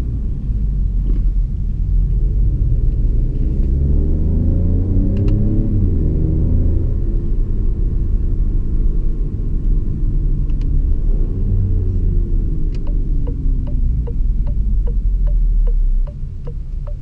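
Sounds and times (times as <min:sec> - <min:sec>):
road rumble: 0:00.0 - 0:17.0
car engine running: 0:12.7 - 0:17.0.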